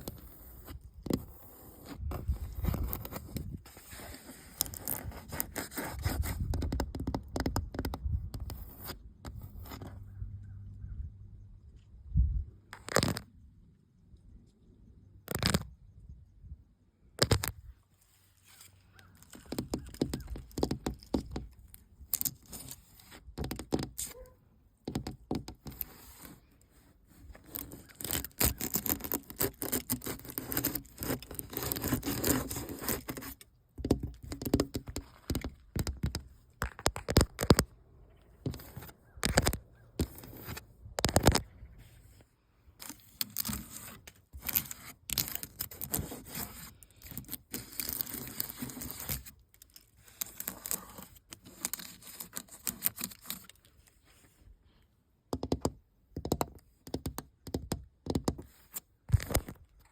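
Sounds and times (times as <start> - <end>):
scraping on painted surface: 0.0 - 10.1, 18.0 - 54.5.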